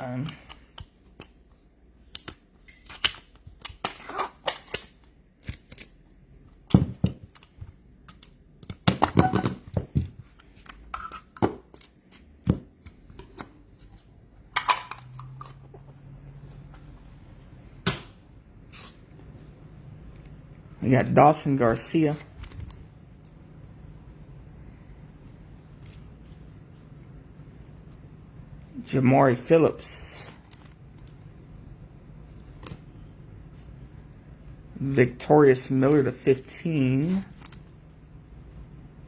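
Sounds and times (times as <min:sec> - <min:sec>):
cards clicking and crinkling: 0:02.0 - 0:06.6.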